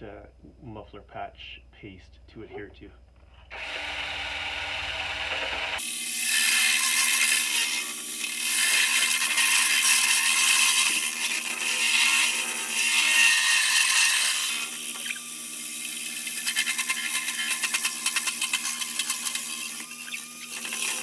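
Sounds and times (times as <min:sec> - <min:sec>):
drill wire brush scraping metal: 0:16.1 - 0:21.0.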